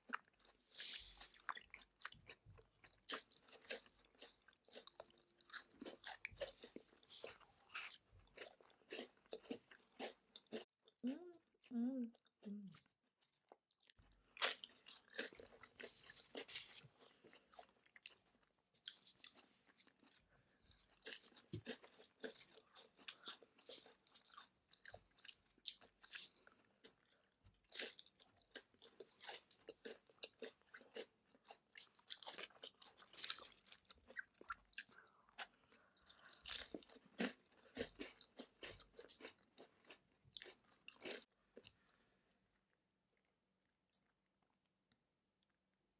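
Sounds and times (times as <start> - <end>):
crunching of crisp snacks: 0.0 - 10.7, 12.4 - 42.0.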